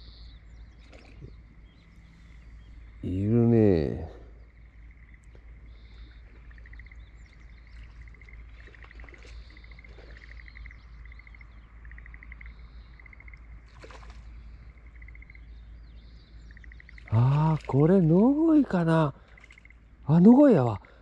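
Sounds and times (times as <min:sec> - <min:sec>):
bird trills: 0:00.0 - 0:21.0
steady low rumble: 0:00.0 - 0:21.0
high bird chirps: 0:05.0 - 0:20.9.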